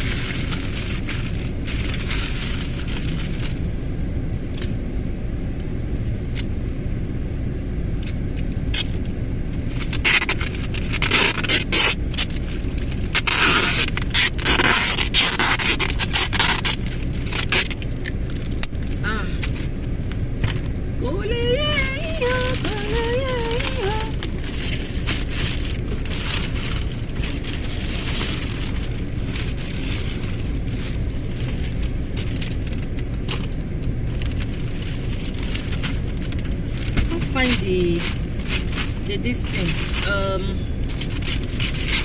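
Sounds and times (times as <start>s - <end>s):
wrapping paper rustling: 0.0s - 3.6s, 8.8s - 42.0s
low rumble inside car: 0.0s - 42.0s.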